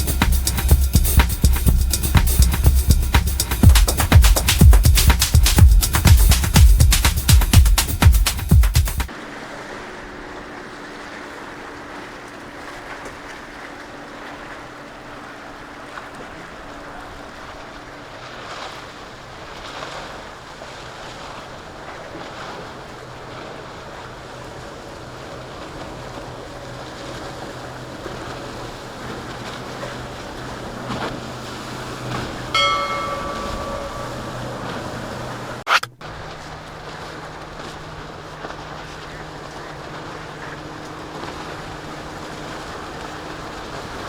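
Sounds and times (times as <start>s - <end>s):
boat engines humming: 0.0s - 44.0s
waves and surf: 0.0s - 44.0s
high-pitched tone: 32.6s - 35.3s.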